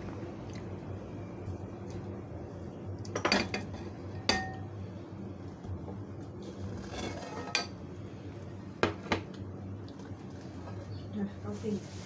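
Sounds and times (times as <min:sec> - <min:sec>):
low steady hum: 0:00.0 - 0:12.0
utensils clinking against dishes: 0:06.9 - 0:07.8.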